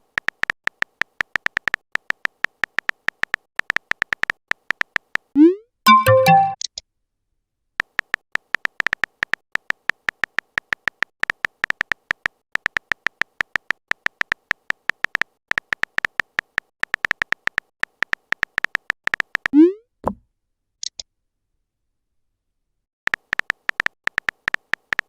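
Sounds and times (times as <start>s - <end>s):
electronic typing ticks: 0.2s - 6.7s, 7.8s - 19.5s, 23.1s - 25.0s
chat app chime: 5.9s - 6.6s.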